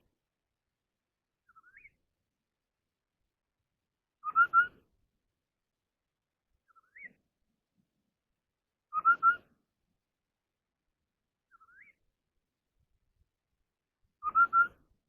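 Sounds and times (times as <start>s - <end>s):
bird whistled call: 1.5s - 2.0s, 4.2s - 4.8s, 6.7s - 7.2s, 8.9s - 9.6s, 11.5s - 12.0s, 14.2s - 14.9s.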